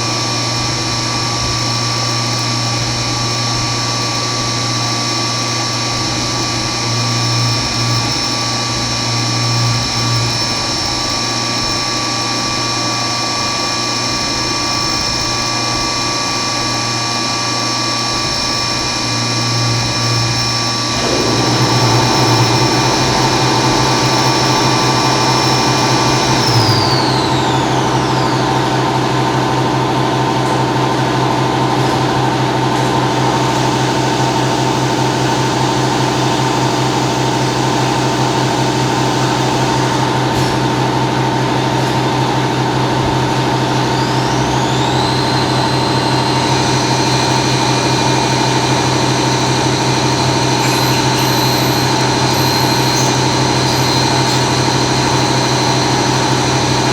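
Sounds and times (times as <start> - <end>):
milling machine whining: 0.0 - 56.9
high whine gliding down: 20.1 - 40.2.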